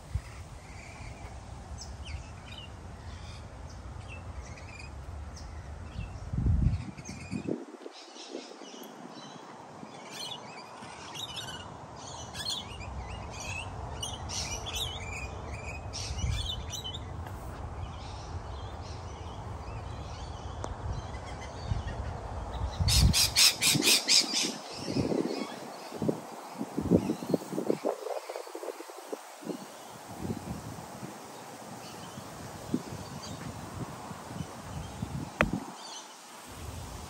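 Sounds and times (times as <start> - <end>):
wild birds calling: 8.0 - 36.5.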